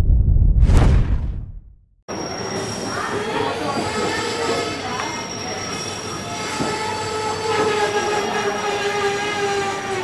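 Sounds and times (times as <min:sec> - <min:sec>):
train running noise: 0:02.1 - 0:10.0.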